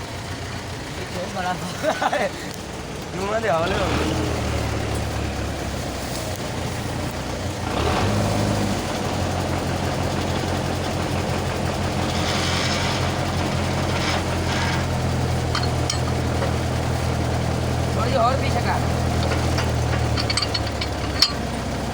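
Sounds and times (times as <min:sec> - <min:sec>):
tractor diesel engine running: 0:00.0 - 0:21.9.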